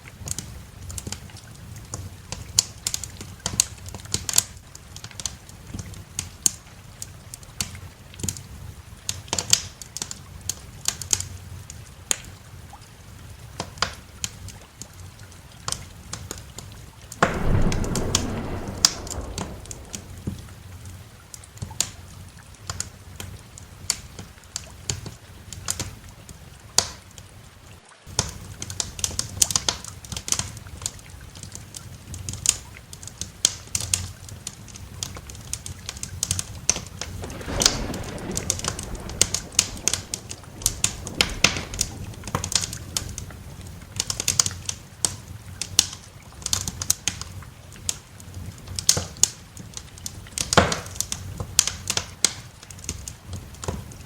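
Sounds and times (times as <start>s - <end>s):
low rumble: 17.2s - 20.8s, 37.2s - 44.0s
wood fire crackling and popping: 17.2s - 20.9s, 36.1s - 54.0s.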